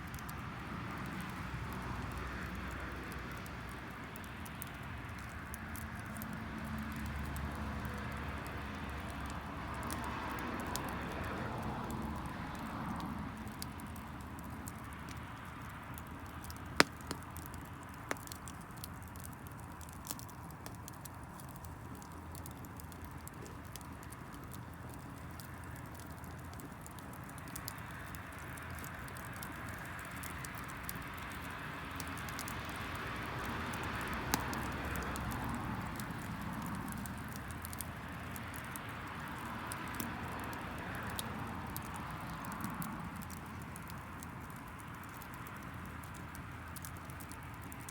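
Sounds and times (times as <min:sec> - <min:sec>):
wood fire crackling: 0:00.0 - 0:47.9
sharp pops of fire: 0:15.9 - 0:47.9
fire hissing: 0:16.4 - 0:44.8.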